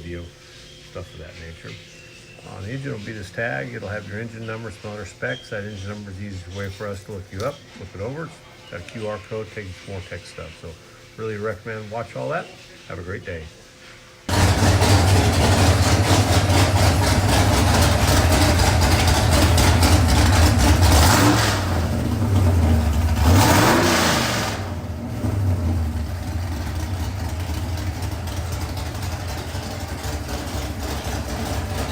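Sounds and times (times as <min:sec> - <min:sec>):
engine idling and revving: 0:14.3 - 0:31.9.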